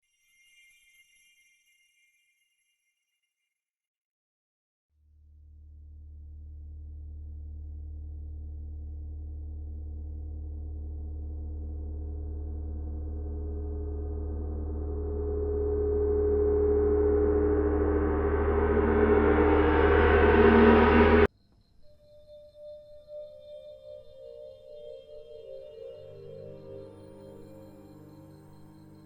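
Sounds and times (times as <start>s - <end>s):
soft bell-like tones: 0.0s - 3.5s
gong-like drone: 7.5s - 21.3s.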